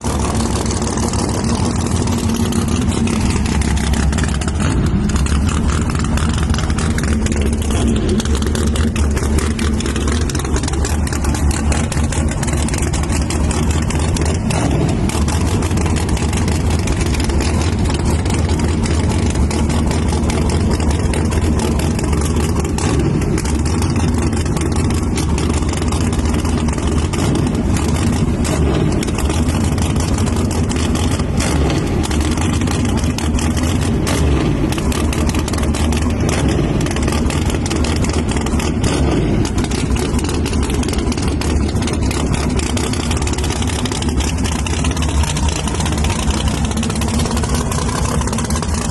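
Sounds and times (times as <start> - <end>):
race vehicle engine idling: 0.0 - 48.9.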